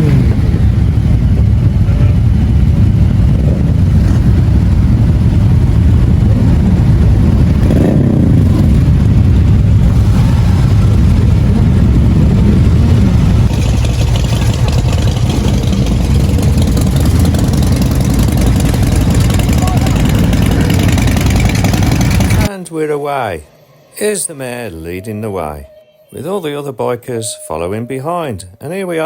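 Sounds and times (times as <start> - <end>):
motorcycle engines revving: 0.0 - 22.5.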